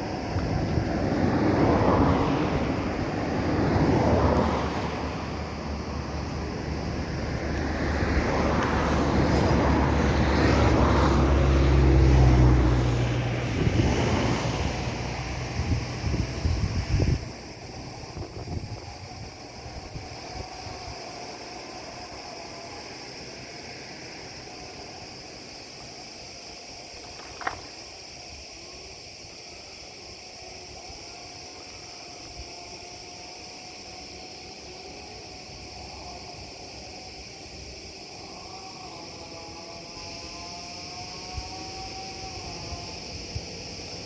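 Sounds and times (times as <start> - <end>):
outdoor background noise: 0.0 - 44.0.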